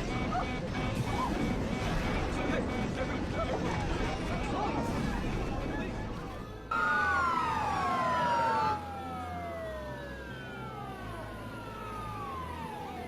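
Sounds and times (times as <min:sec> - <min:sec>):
emergency vehicle sirens wailing: 0:06.4 - 0:13.0.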